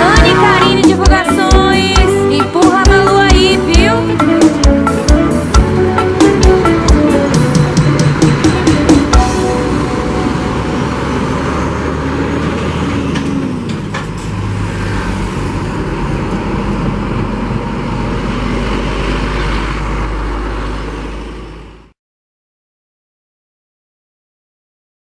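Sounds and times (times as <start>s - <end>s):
heavy truck engine running: 0.0s - 22.0s
road and wind noise: 3.1s - 22.0s.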